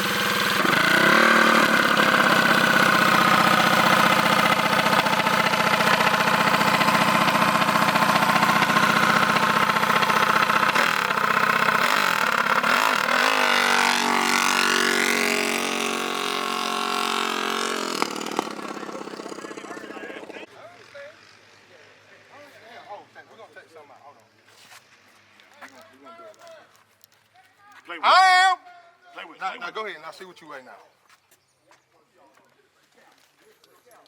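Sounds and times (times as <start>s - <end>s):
small petrol engine running: 0.0s - 22.2s.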